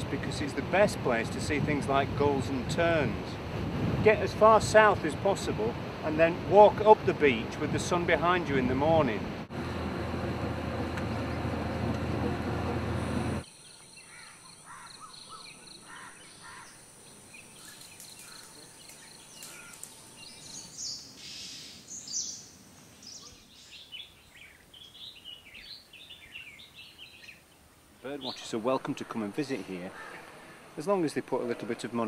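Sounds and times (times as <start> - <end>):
wind: 0.0 - 32.0
small birds chirping: 10.9 - 29.3.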